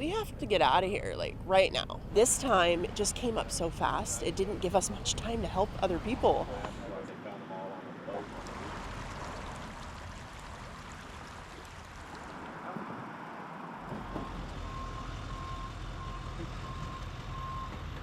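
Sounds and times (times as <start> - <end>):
heavy vehicle engine rumbling: 0.0 - 7.3, 8.0 - 18.0
reversing alarm beeping: 14.2 - 17.8.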